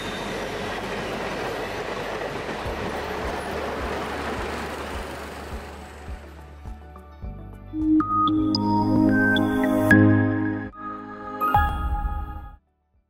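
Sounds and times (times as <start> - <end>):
train wheels rumbling and clacking: 0.0 - 6.6.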